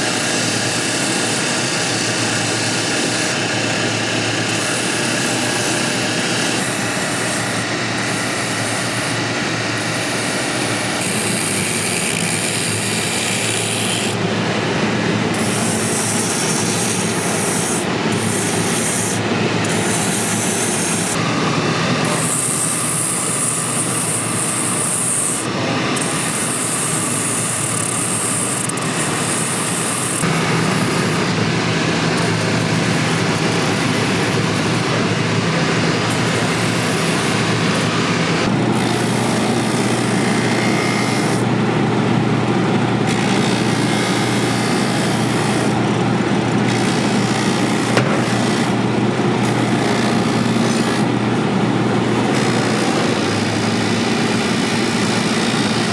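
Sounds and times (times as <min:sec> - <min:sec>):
finishing machine humming: 0:00.0 - 0:55.9
boot sole sanding rasp: 0:04.6 - 0:09.2, 0:09.8 - 0:14.2, 0:15.4 - 0:21.2, 0:22.0 - 0:31.3.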